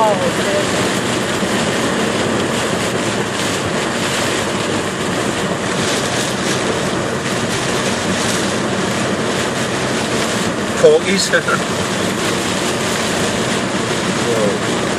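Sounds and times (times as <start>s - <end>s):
heavy rain: 0.0s - 14.9s
tyre spray on flooded road: 0.0s - 14.9s.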